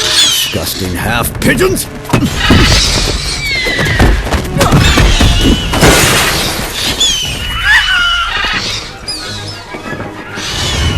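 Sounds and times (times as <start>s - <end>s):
crashing and shattering impacts: 4.0s - 7.2s.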